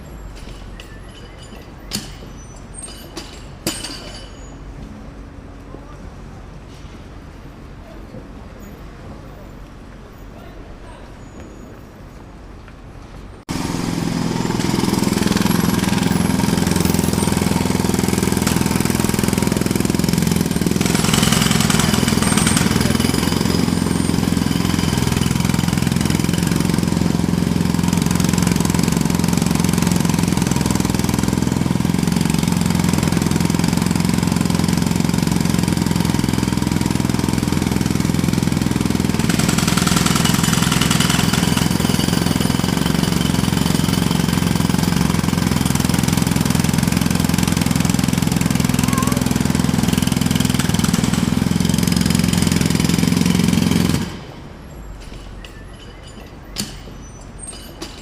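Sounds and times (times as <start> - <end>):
jackhammer hammering: 0.4 - 4.4, 13.5 - 54.5.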